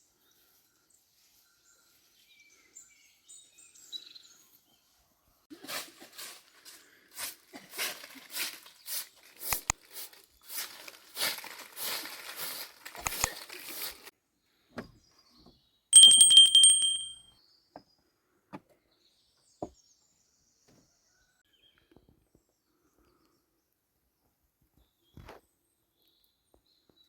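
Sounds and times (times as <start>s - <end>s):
bright metallic ring: 16.0s - 17.2s.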